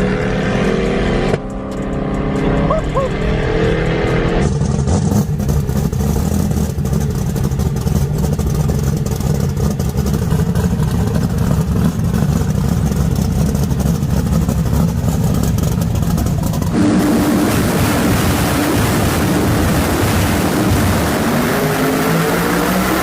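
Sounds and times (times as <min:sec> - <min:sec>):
car engine idling: 0:01.7 - 0:23.0.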